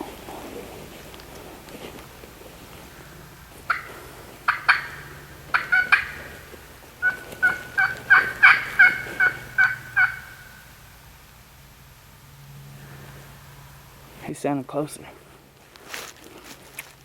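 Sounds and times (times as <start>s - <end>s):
turkey yelps: 2.9s - 10.7s.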